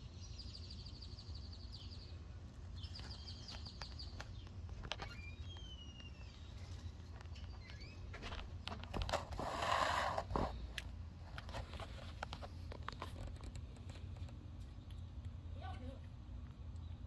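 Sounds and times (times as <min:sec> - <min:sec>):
bird chirping: 0:00.0 - 0:08.2.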